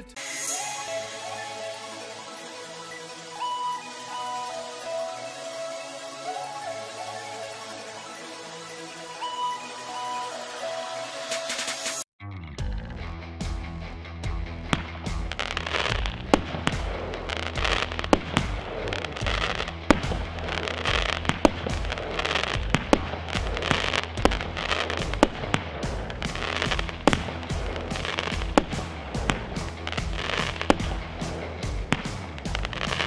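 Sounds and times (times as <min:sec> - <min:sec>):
firework reports: 0:00.0 - 0:12.0, 0:14.7 - 0:33.0
firework shell crackle: 0:14.7 - 0:33.0.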